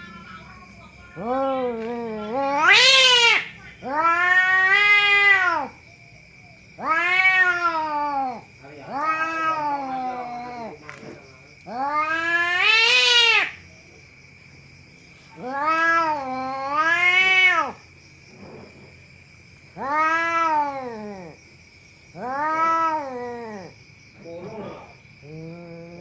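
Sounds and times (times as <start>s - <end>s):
cat yowling: 1.1s - 5.8s, 6.8s - 10.8s, 11.6s - 13.6s, 15.3s - 17.8s, 19.7s - 21.4s, 22.1s - 23.7s.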